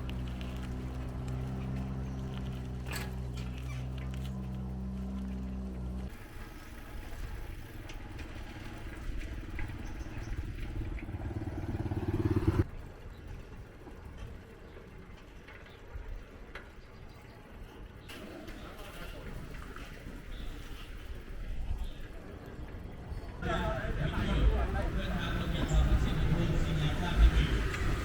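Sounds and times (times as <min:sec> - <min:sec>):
small engine revving: 0:00.0 - 0:12.7.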